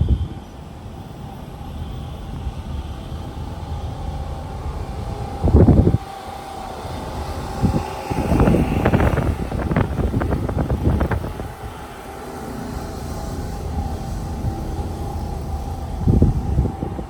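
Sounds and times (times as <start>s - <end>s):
steady low rumble: 0.0s - 17.0s
wind buffeting microphone: 0.0s - 17.0s.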